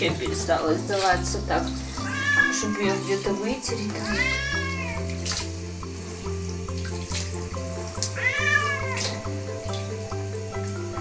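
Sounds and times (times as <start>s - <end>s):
background music with steady beat: 0.0s - 11.0s
shower spraying water: 0.0s - 11.0s
cat meowing: 2.0s - 3.4s, 4.0s - 5.2s, 8.1s - 9.2s.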